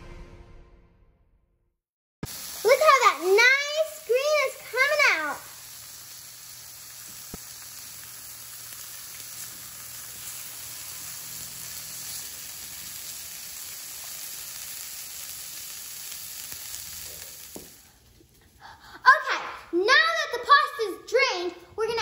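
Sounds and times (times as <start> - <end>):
bacon and peas sizzling in a pan: 2.2 - 18.4.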